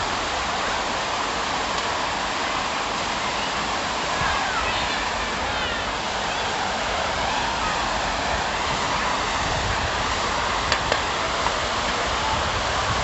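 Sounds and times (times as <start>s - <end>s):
rushing city background noise: 0.0s - 13.0s.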